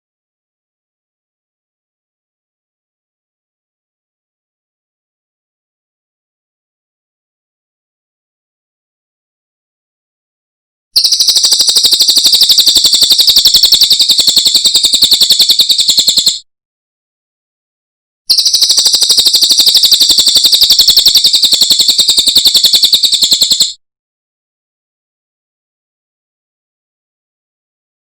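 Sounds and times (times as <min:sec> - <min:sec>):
bird high-pitched trill: 0:11.0 - 0:16.4, 0:18.3 - 0:23.8.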